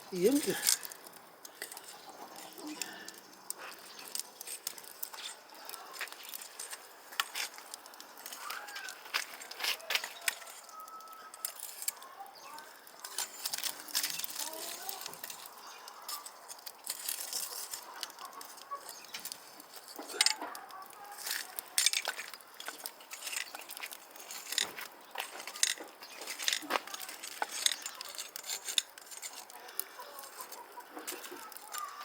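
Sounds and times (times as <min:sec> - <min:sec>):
sharp crackles and pops: 0:00.0 - 0:32.0
chickens clucking: 0:01.4 - 0:03.9, 0:17.5 - 0:21.8, 0:24.8 - 0:32.0.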